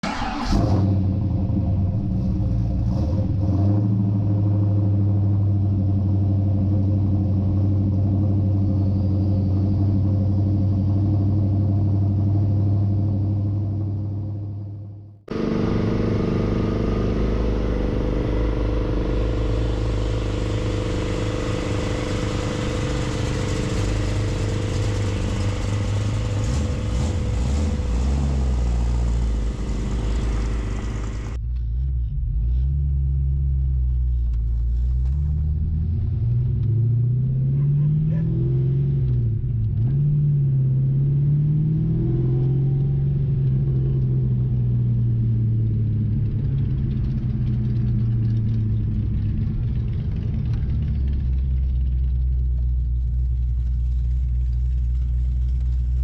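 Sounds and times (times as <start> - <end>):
engine revving: 0.0 - 14.2, 15.3 - 44.6
car engine running: 0.0 - 40.0, 42.2 - 56.0
road and wind noise: 0.0 - 56.0.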